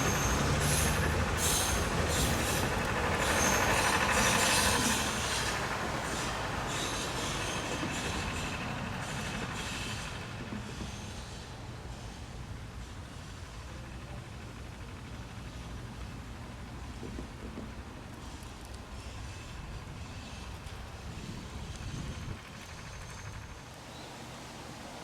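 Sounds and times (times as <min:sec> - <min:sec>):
clatter over rail joints: 0:00.0 - 0:11.4
wheel squeal: 0:00.0 - 0:11.4
train wagons rolling on track: 0:00.0 - 0:25.0.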